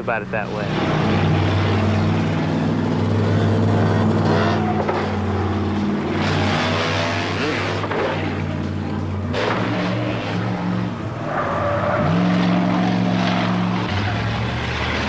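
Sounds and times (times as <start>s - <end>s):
car and motorcycle engines drone: 0.0s - 15.0s.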